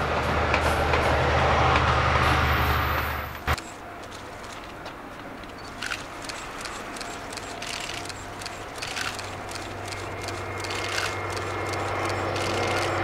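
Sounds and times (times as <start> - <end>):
train approaching: 0.0 - 13.0
sharp clicks: 5.4 - 13.0.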